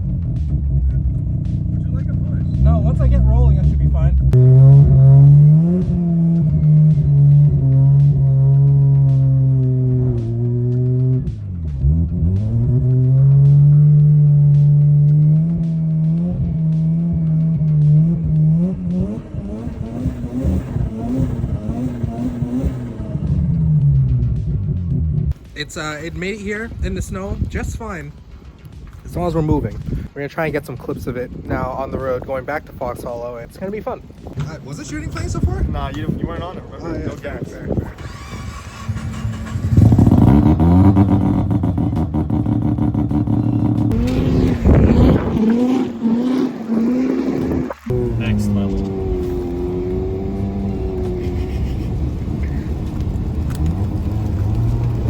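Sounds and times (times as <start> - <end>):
rotary engine through loud exhaust: 0.0 - 25.4, 37.7 - 55.0.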